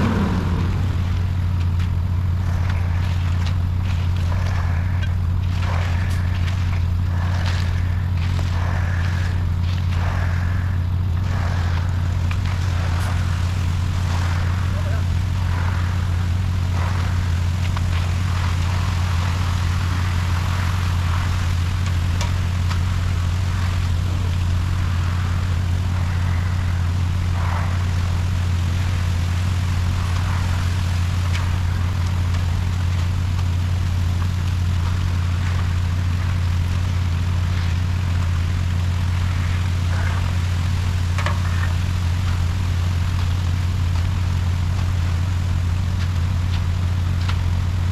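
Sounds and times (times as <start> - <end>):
mixer drum swishing: 0.0 - 2.6
truck diesel engine droning: 0.0 - 47.9.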